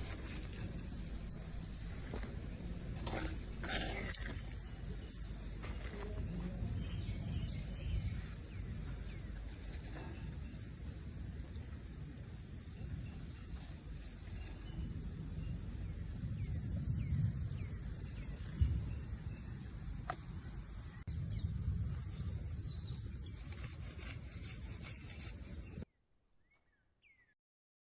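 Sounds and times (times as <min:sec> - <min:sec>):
low rumble: 0:00.0 - 0:03.7
insects chirring: 0:00.0 - 0:25.9
faint bird chirps: 0:26.4 - 0:27.4.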